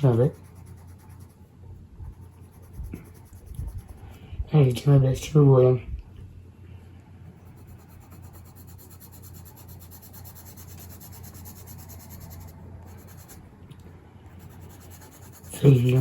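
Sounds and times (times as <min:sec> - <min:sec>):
pencil scratching on paper: 0:00.0 - 0:01.4, 0:02.0 - 0:04.1, 0:07.4 - 0:13.4, 0:14.4 - 0:16.0.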